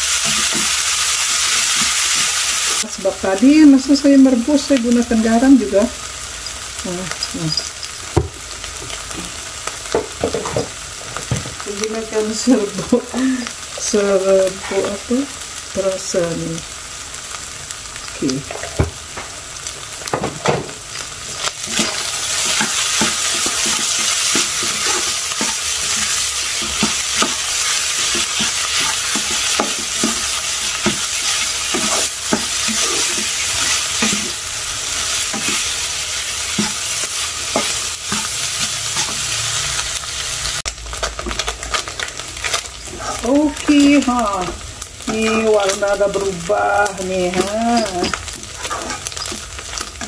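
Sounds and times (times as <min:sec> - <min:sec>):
fish sizzling in a wok: 0:00.0 - 0:50.0
spatula knocking and scraping: 0:36.5 - 0:36.9, 0:48.0 - 0:49.4.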